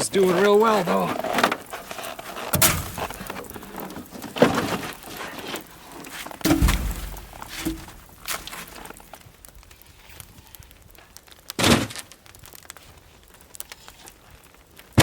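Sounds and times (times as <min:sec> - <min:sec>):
wooden clatter: 0:00.0 - 0:09.2
logs knocking and thudding: 0:01.0 - 0:09.3.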